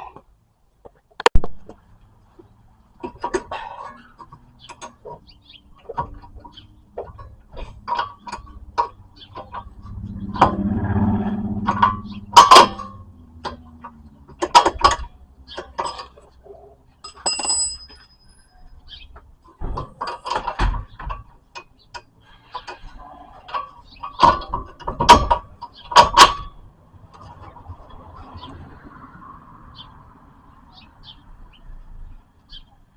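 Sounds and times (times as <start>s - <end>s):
metal knocks and clanks: 3.0s - 18.2s, 19.5s - 27.6s.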